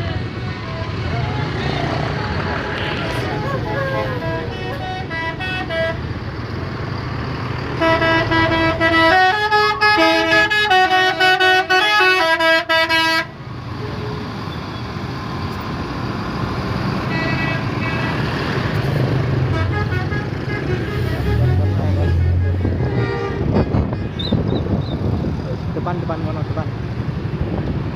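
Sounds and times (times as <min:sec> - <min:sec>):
musical bus horns: 0:00.0 - 0:06.6, 0:07.6 - 0:14.3, 0:17.0 - 0:25.0
bus engines running: 0:00.0 - 0:27.9.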